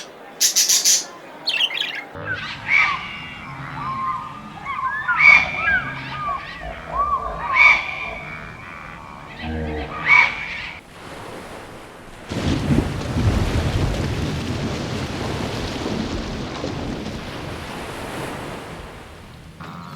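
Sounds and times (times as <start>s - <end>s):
birds chirping and squawking: 0.0s - 10.8s.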